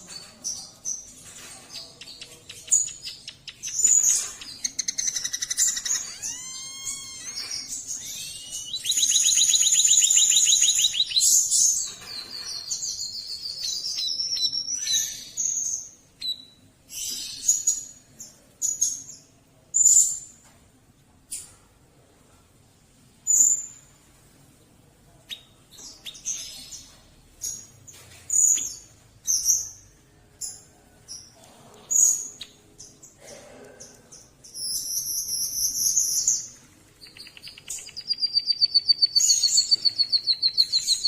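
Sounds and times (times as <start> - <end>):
bird singing chirps and trills: 34.5 - 41.0.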